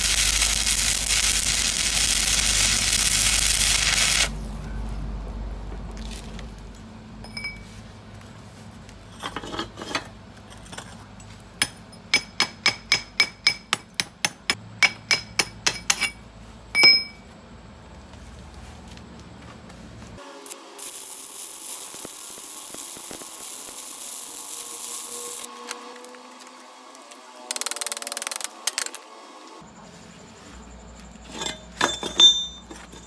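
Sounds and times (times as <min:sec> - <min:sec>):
loud steady hiss: 0:00.0 - 0:04.5, 0:20.2 - 0:25.5.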